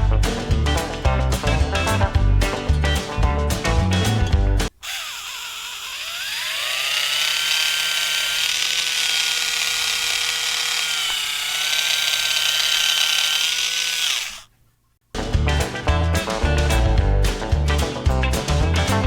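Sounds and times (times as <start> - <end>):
small electric motor whirring: 4.7 - 14.5.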